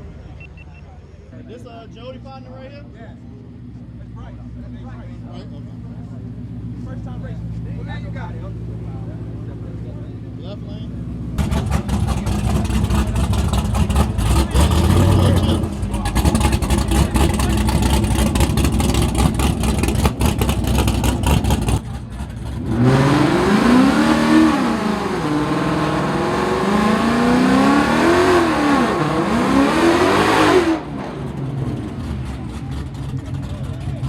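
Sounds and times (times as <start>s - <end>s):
car engine revving: 5.2s - 34.0s.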